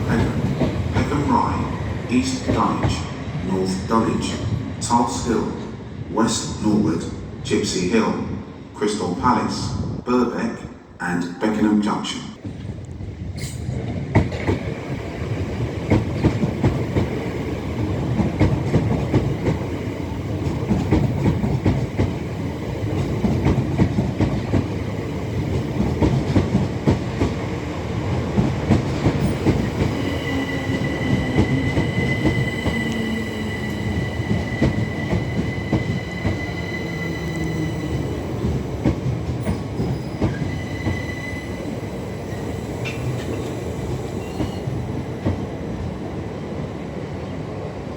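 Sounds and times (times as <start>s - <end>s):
train wheels clattering: 13.4s - 41.2s.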